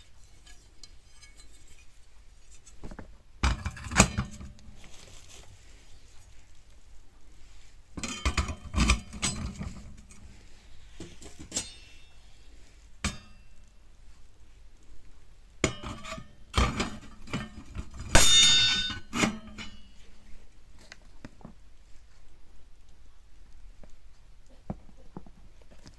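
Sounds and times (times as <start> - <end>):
metal parts clinking and clanging: 16.8 - 19.9.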